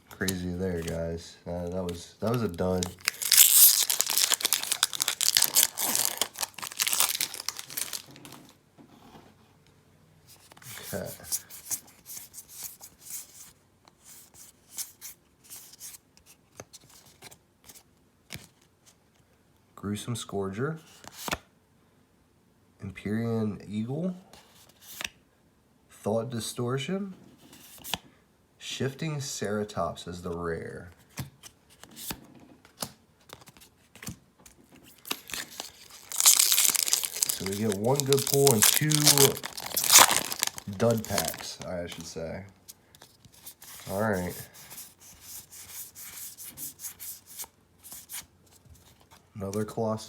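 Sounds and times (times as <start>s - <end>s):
cards rustling and scraping: 0.2s - 1.2s, 1.8s - 9.2s, 10.3s - 19.0s, 24.4s - 25.2s, 27.4s - 28.0s, 31.0s - 49.3s
foil wrapper crinkling and tearing: 2.2s - 8.5s, 34.9s - 42.0s.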